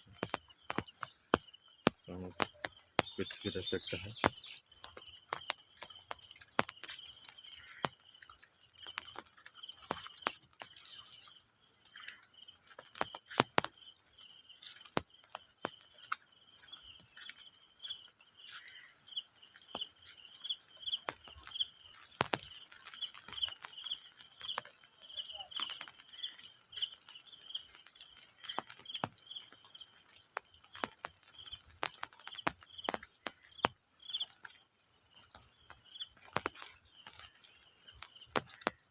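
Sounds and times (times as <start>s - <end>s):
sharp clicks and taps: 0.0s - 7.0s
insects chirping: 0.0s - 38.9s.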